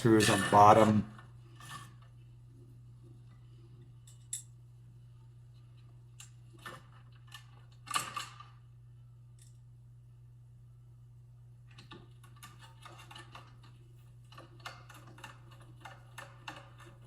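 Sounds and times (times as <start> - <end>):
low steady hum: 8.4 - 12.5.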